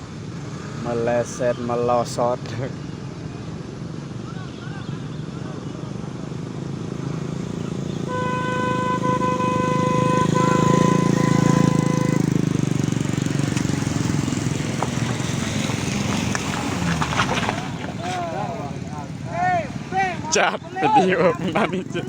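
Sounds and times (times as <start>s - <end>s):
traffic engines rumbling: 0.0s - 22.0s
vehicle horn steady note: 7.9s - 12.7s.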